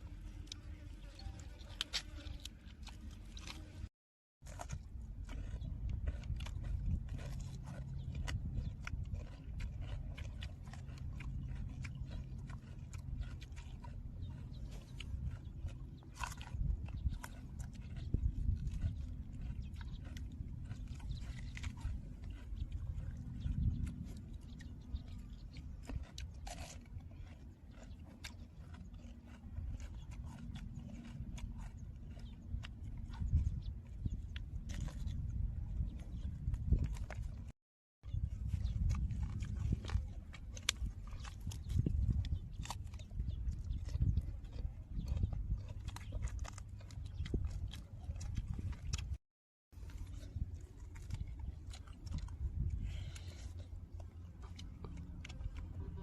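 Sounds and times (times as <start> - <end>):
person chewing food: 0.0 - 56.0
steady low rumble: 4.5 - 27.6, 49.8 - 56.0.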